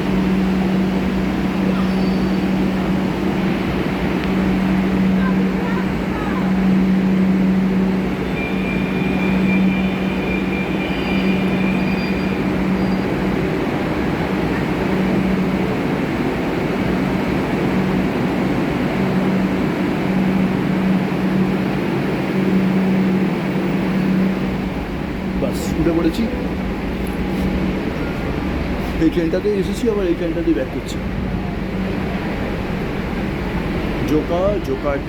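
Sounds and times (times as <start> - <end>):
ventilation rushing: 13.5 - 35.0.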